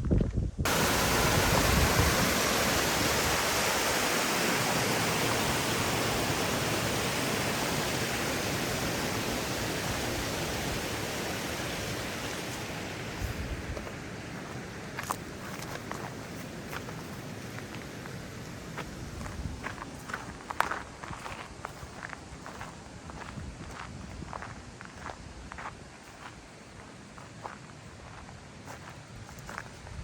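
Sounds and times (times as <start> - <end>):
mountain water rushing: 0.7 - 21.0.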